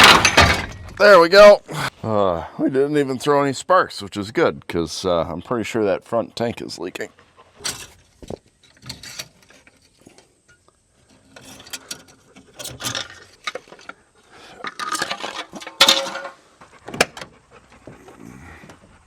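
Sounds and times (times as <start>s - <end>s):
metal parts clinking and clanking: 0.0s - 1.0s, 7.6s - 8.0s, 8.6s - 9.9s, 11.2s - 14.0s, 14.6s - 16.4s
metal scraping: 14.6s - 16.5s.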